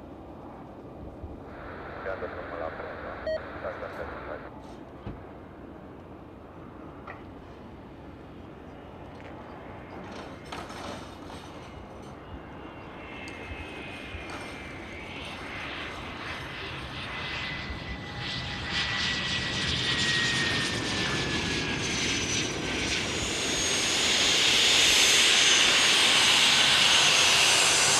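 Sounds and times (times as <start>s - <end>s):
jet engine whine: 0.0s - 27.9s.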